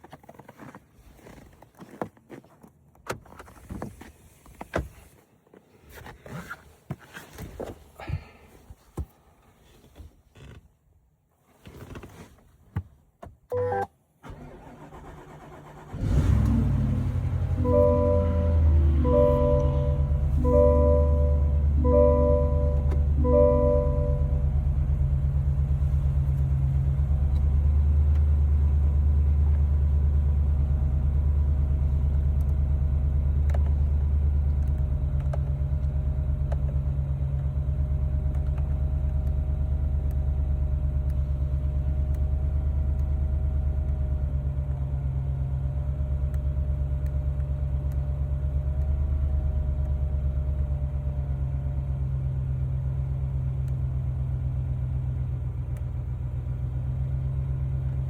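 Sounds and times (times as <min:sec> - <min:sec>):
car engine idling: 0:14.4 - 0:58.0.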